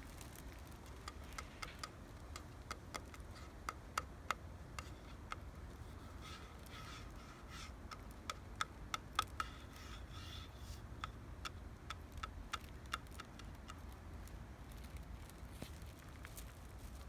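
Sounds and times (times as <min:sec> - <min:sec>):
leaves rustling: 0:00.0 - 0:02.4, 0:13.1 - 0:17.0
bamboo stems knocking together: 0:11.0 - 0:14.0.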